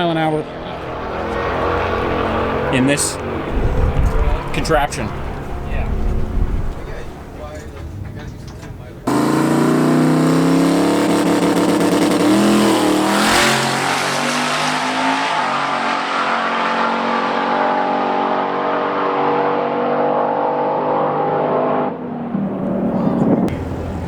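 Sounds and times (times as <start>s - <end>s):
race car engine at full throttle: 0.0s - 24.0s.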